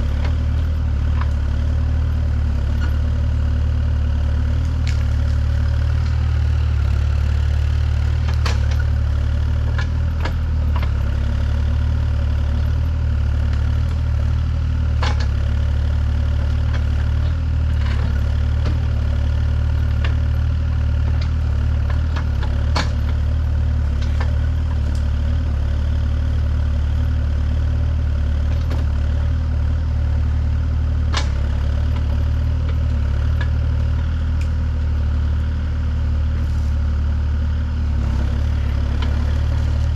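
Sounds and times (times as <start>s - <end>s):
engine idling with low hum: 0.0s - 39.9s.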